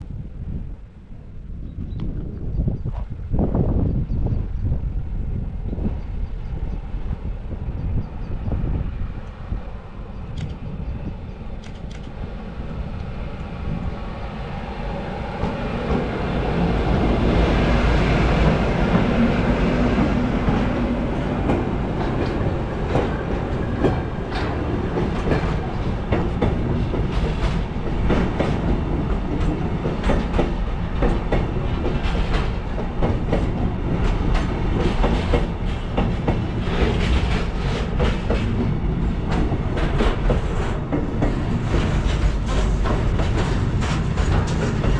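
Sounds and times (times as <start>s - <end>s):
freight train rumble: 0.0s - 44.9s
wheels clicking over rail joints: 18.2s - 44.9s.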